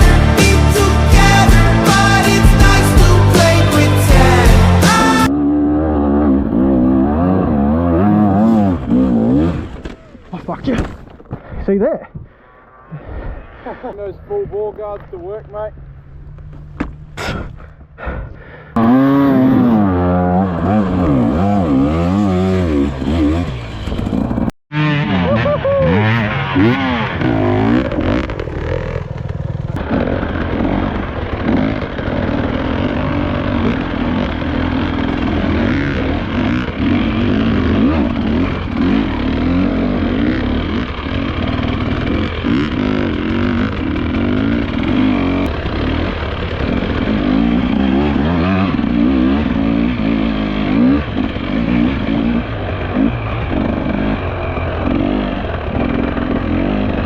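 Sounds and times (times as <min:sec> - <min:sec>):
dirt bike engine revving: 0:00.0 - 0:11.1, 0:18.5 - 0:57.0.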